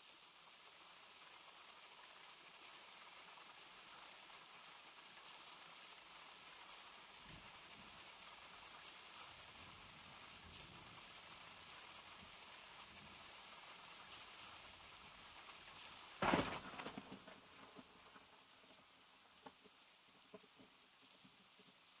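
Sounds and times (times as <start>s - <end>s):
steady rain falling: 0.0s - 22.0s
sudden loud crack: 16.2s - 17.8s.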